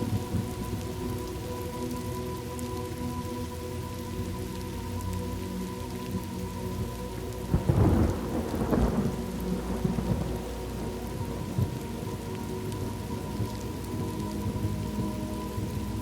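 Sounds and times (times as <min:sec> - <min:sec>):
steady rain: 0:00.0 - 0:16.0
thunderclap rumbling: 0:07.5 - 0:16.0.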